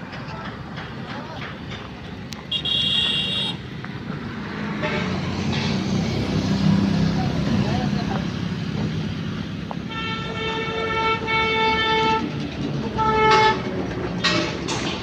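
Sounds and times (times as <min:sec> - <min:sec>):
engine and traffic noise: 0:00.0 - 0:15.0
vehicle horn toots: 0:02.5 - 0:03.6, 0:09.9 - 0:12.2.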